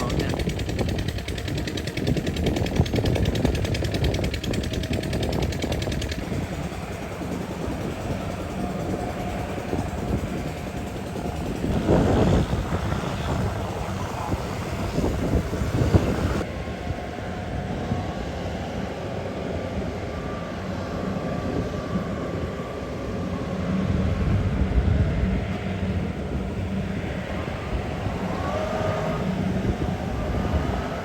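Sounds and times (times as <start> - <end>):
combine harvester engine running: 0.0 - 17.1, 23.8 - 31.0.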